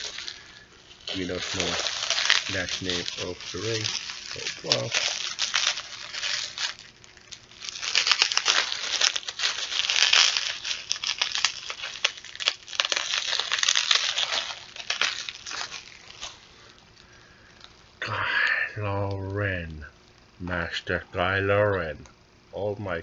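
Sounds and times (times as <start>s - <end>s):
packaging crinkling and rustling: 0.0s - 17.8s.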